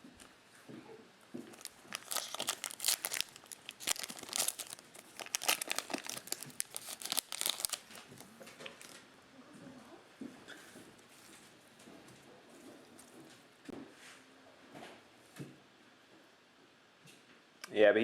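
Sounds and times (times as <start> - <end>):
plastic wrapper crinkling: 1.4 - 9.0.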